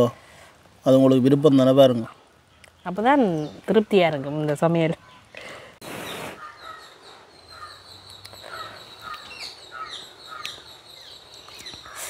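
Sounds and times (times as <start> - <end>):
small birds chirping: 0.8 - 12.0
brief hiss: 5.8 - 6.4.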